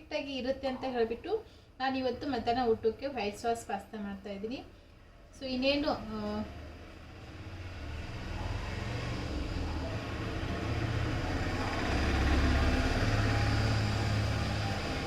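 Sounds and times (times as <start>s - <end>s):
passing vehicle engine and tyres: 5.9s - 15.0s.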